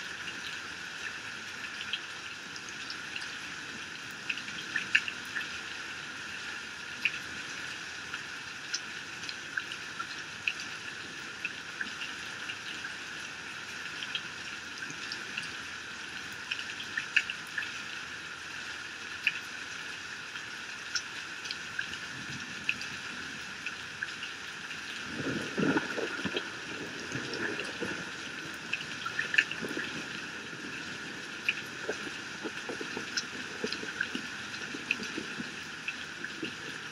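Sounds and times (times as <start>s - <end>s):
heavy rain pouring off roof: 0.0s - 36.9s
water drips: 20.8s - 36.9s.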